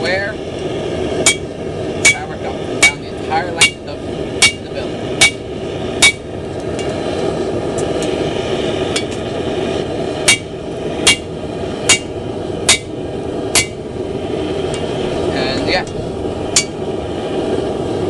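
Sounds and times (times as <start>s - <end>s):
steady rushing noise: 0.0s - 18.0s
hammer striking steel on anvil: 1.2s - 5.4s, 6.0s - 6.9s, 8.9s - 9.2s, 10.2s - 11.3s, 11.9s - 13.8s, 16.5s - 16.8s.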